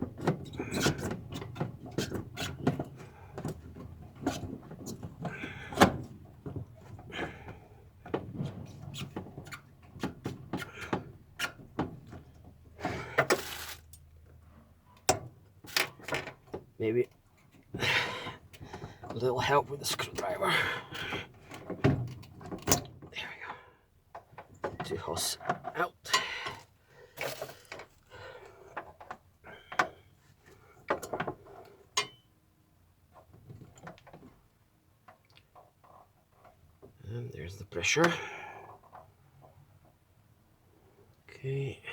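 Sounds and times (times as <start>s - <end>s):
brief rustle: 13.3s - 13.9s
clicks and knocks of tools: 32.0s - 32.2s.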